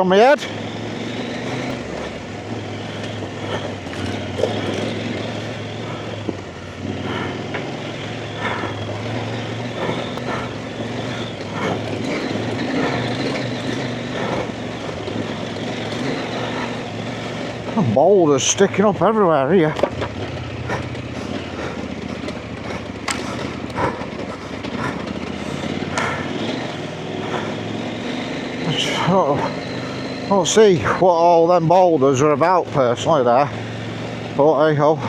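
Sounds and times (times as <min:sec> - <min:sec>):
motorcycle engine running: 0:00.0 - 0:35.0
knocks and clatter over stones: 0:02.9 - 0:09.1, 0:09.8 - 0:27.5.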